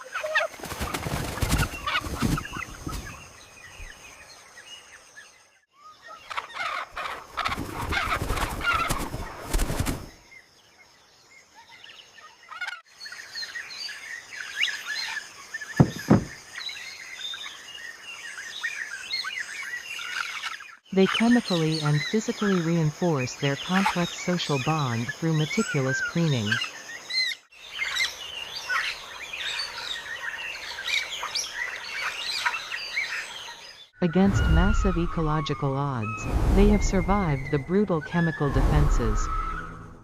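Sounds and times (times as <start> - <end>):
thump: 15.8 - 16.4.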